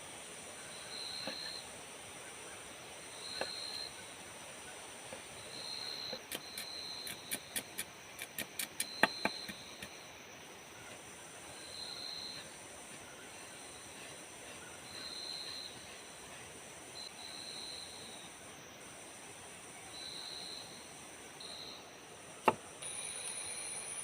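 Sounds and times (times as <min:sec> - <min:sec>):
insects buzzing chorus: 0:00.0 - 0:24.0
sharp clicks: 0:06.2 - 0:10.0.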